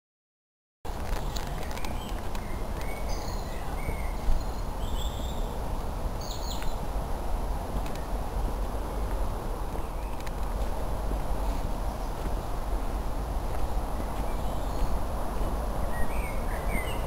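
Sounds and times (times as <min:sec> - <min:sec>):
wild birds chirping: 0:01.2 - 0:05.6, 0:06.2 - 0:06.9, 0:09.7 - 0:10.3, 0:13.8 - 0:15.1, 0:15.9 - 0:17.0.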